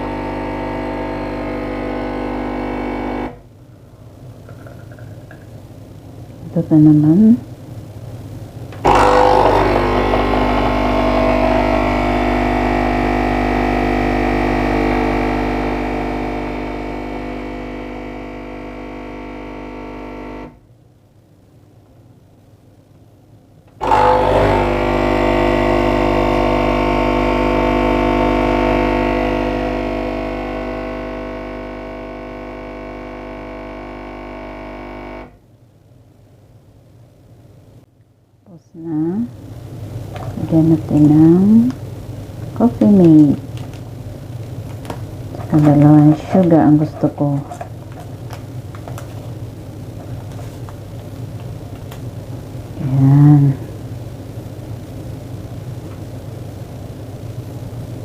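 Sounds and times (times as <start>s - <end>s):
coffee machine pump buzzing: 0.0s - 3.4s, 8.8s - 20.6s, 23.8s - 35.4s, 44.6s - 53.8s.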